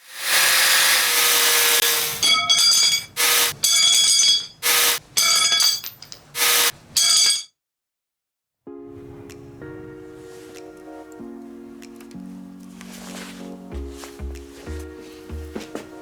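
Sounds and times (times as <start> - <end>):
power tool cutting metal: 0.0 - 5.7, 6.4 - 7.2
ringing metallic tones: 1.2 - 7.5
music: 8.7 - 16.0.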